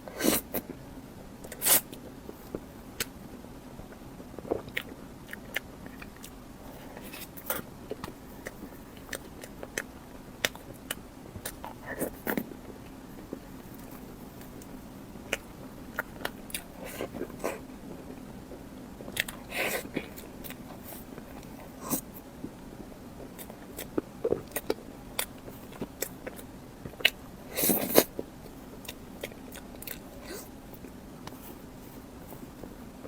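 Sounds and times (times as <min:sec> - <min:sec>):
chewing and biting: 0:04.4 - 0:18.3, 0:19.0 - 0:22.1, 0:23.2 - 0:31.6.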